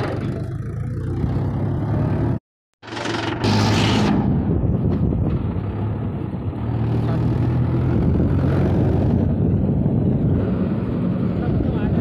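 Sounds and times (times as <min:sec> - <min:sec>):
tractor engine running: 0:00.0 - 0:06.6.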